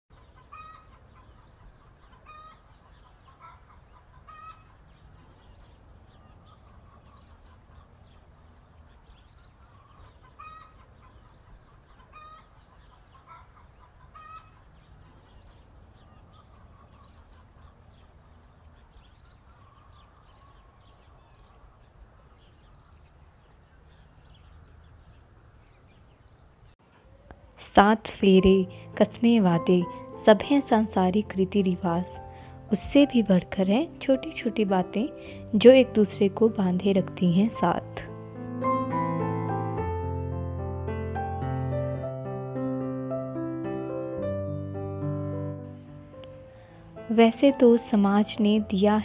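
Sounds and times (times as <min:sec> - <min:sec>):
birds calling: 0:00.1 - 0:38.2.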